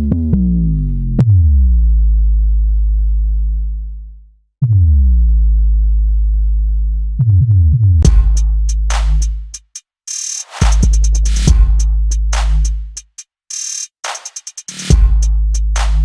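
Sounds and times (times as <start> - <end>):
deep sub-bass notes: 0.0 - 9.6, 10.6 - 13.0, 14.9 - 16.0
short bass hits: 8.0 - 9.4, 10.7 - 12.6
hi-hat and snare hits: 8.0 - 16.0.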